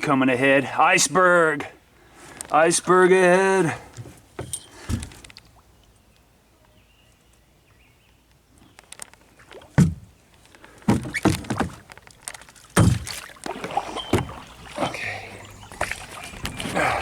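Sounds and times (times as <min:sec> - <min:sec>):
paddle splashing water: 0:09.0 - 0:17.0
paddle knocking kayak hull: 0:10.8 - 0:12.0, 0:12.7 - 0:17.0.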